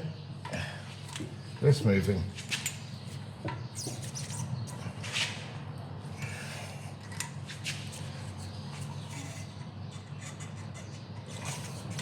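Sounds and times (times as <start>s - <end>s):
tool clicks and squeaks: 2.4s - 4.8s.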